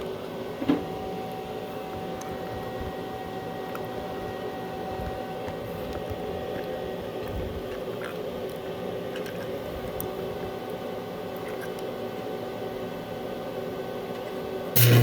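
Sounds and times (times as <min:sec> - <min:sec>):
electrical hum: 0:00.0 - 0:15.0
welding crackle: 0:14.8 - 0:15.0.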